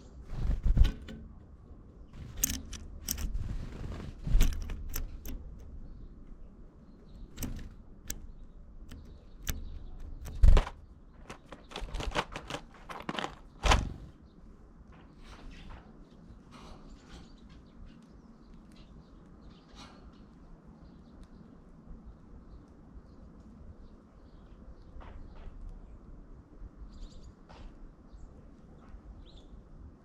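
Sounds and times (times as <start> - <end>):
bird pecking and hammering: 0.4 - 1.5, 2.2 - 6.0, 7.1 - 14.1
loud thumps: 13.6 - 14.2.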